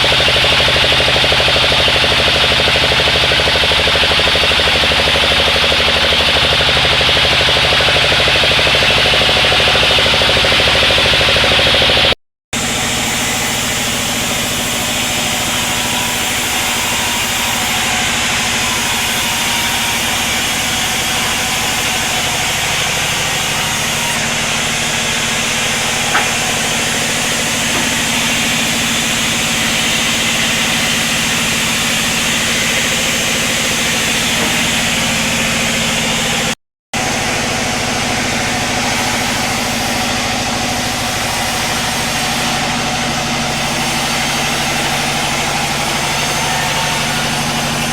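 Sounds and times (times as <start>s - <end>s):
sawmill machinery hum and hiss: 0.0s - 47.9s.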